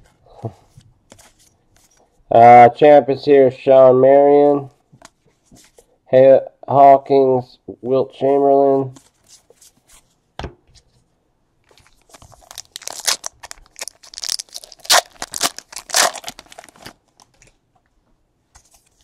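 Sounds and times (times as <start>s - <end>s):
wrapper tearing and crinkling: 11.8s - 17.4s.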